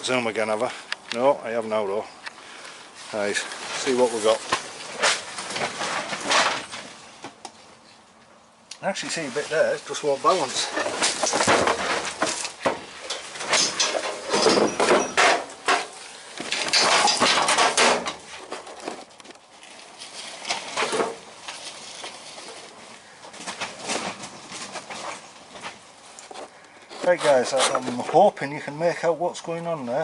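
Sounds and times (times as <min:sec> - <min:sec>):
metallic clattering and knocks: 0:10.6 - 0:19.0.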